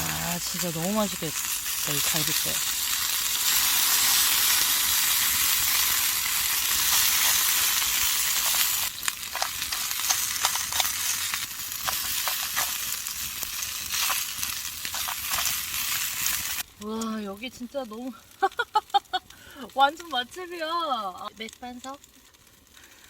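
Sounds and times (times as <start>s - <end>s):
meat sizzling on grill plate: 0.0s - 17.2s
sharp pops and crackles: 0.0s - 23.0s.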